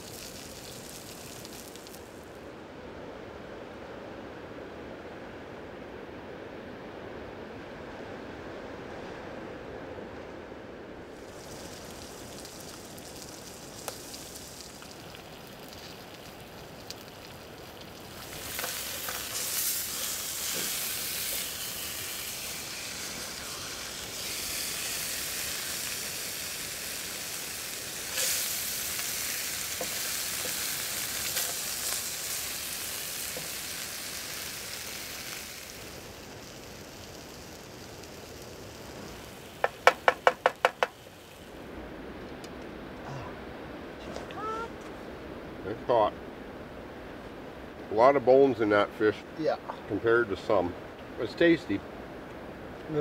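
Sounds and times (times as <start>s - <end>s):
food sizzling in a pan: 0.0s - 2.2s, 11.1s - 41.6s
spatula stirring in a pan: 18.2s - 21.5s.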